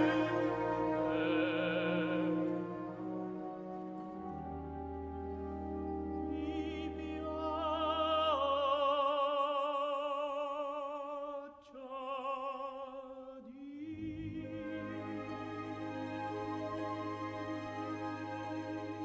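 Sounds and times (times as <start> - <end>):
orchestra: 0.0 - 9.9, 14.0 - 19.0
operatic singing: 0.0 - 19.0.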